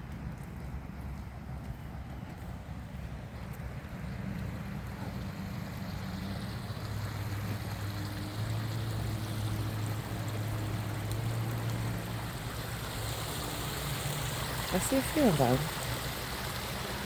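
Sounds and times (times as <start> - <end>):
rain hissing: 4.5 - 17.0.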